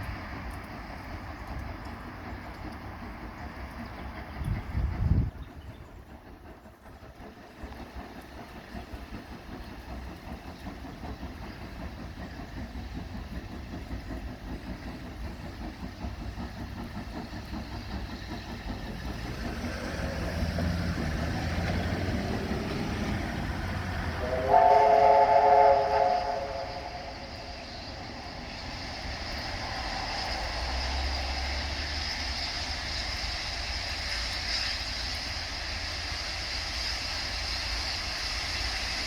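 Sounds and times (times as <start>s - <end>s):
steam locomotive rumble: 0.0s - 39.0s
steam whistle chord: 22.0s - 27.8s.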